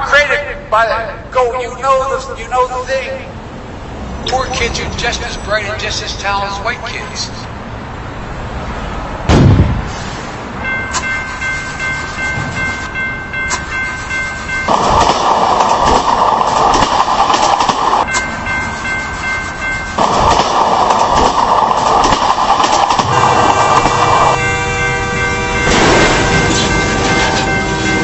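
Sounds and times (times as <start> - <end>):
train cars rushing and rumbling: 0.0 - 28.0
steady high ringing tones: 10.6 - 22.5, 23.1 - 28.0.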